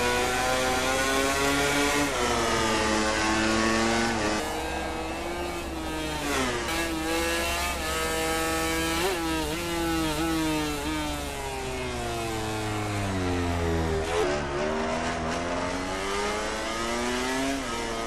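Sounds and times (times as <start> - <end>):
racing motorcycle engine revving: 0.0 - 18.0.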